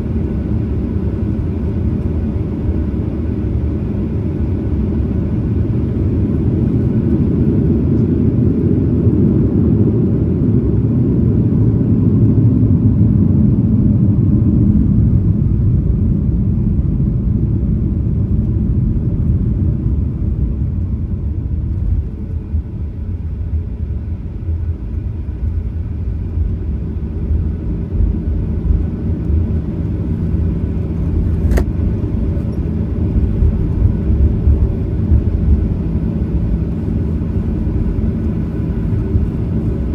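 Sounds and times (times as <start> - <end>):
airplane cabin engine rumble: 0.0 - 39.9
brief click: 31.4 - 31.7.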